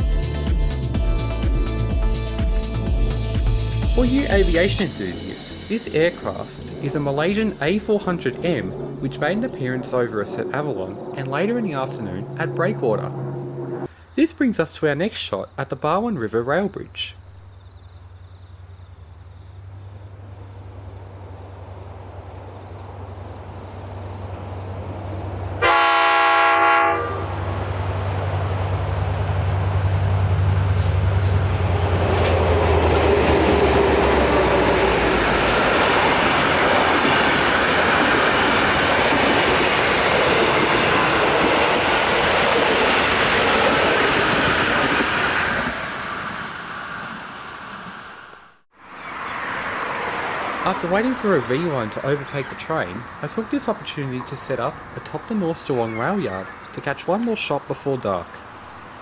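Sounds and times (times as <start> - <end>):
diesel locomotive engine drone: 0.2 - 14.2, 16.8 - 59.0
train horn blast: 25.6 - 27.6
train wheels clickety-clack: 29.4 - 45.2.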